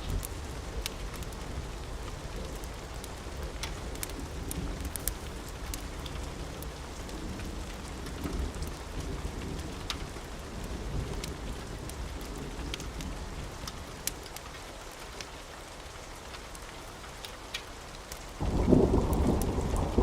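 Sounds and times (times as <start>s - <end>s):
rain falling: 0.0s - 20.0s
distant thunder rumbling: 18.4s - 20.0s.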